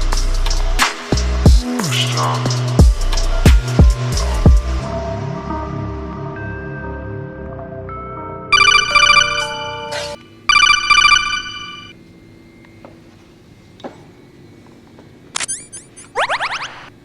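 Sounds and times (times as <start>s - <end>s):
background music: 0.0s - 11.2s
warbling telephone ringtone: 8.5s - 12.0s.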